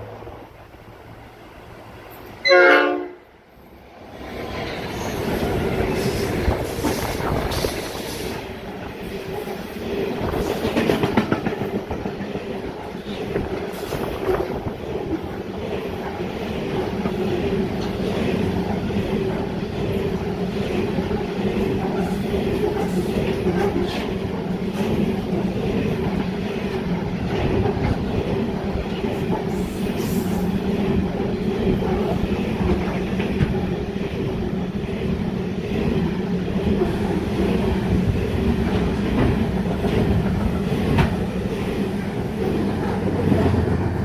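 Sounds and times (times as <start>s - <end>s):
train horn: 2.4s - 3.3s
train wheels clacking on rails: 4.4s - 44.0s.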